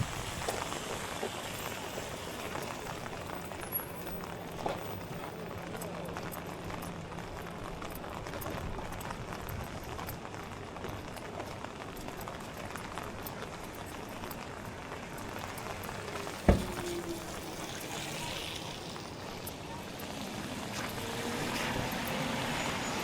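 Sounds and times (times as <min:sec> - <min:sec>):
rain falling on street: 0:00.0 - 0:23.0
sharp knock: 0:16.5 - 0:16.9.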